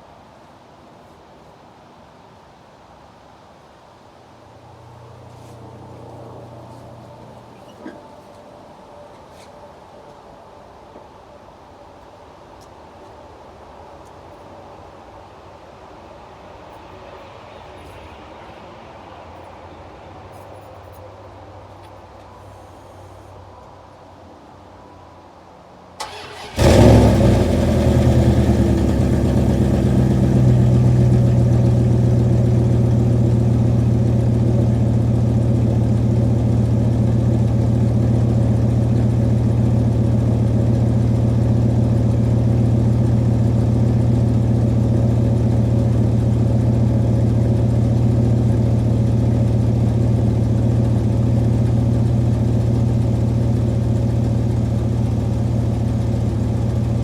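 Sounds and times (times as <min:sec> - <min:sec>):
engine cold start and idle: 0:26.0 - 0:57.0.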